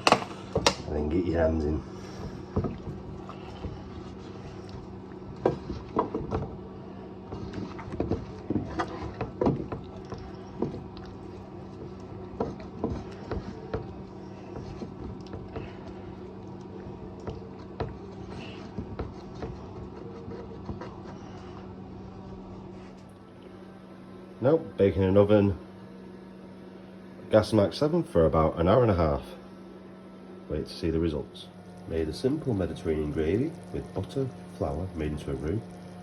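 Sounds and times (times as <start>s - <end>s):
hands mixing food in tin: 0.0s - 23.0s.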